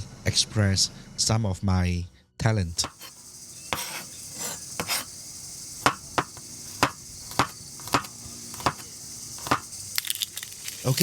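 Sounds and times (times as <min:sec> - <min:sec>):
high insect drone: 0:02.4 - 0:11.0
knife chopping on cutting board: 0:02.8 - 0:05.1, 0:05.8 - 0:09.7.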